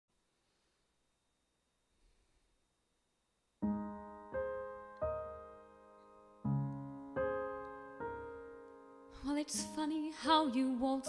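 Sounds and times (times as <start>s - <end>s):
piano chords ringing: 3.6s - 11.0s.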